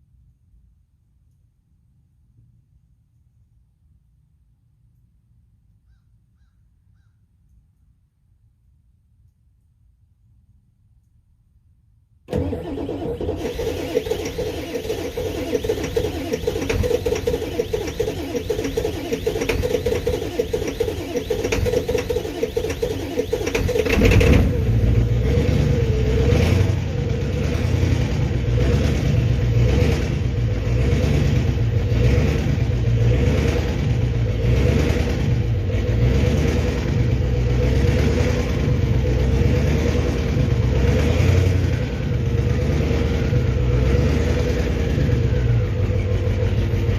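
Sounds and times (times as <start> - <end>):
diesel engine cranking: 12.3 - 46.9
diesel engine running unevenly: 12.3 - 46.9.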